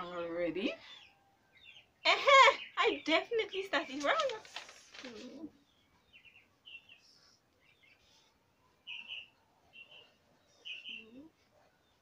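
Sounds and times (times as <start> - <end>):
small bird chirping: 5.0 - 12.0.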